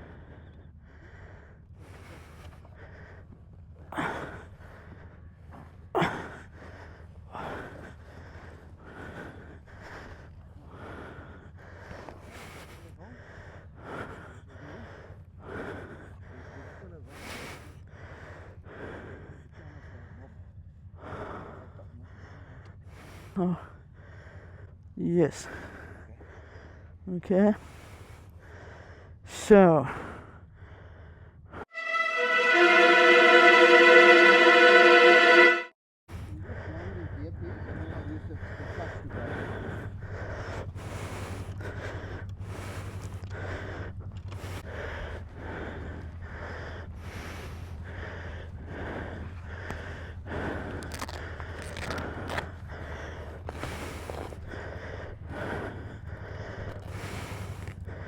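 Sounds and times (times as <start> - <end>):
person breathing hard: 0.0 - 24.8, 27.6 - 29.2, 29.9 - 31.7, 37.5 - 58.0
low hum: 31.7 - 35.7.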